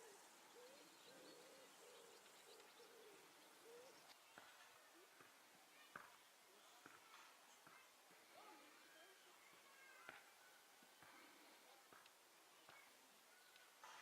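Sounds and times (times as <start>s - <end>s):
faint bird cooing: 0.0s - 5.3s.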